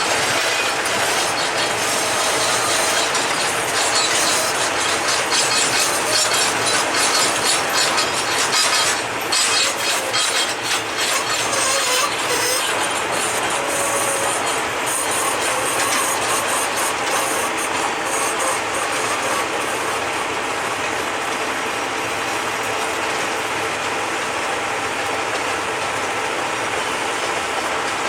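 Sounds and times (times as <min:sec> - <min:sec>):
steel wheel squeal: 0:00.0 - 0:21.5
train wheels rattling over rail joints: 0:00.0 - 0:28.0.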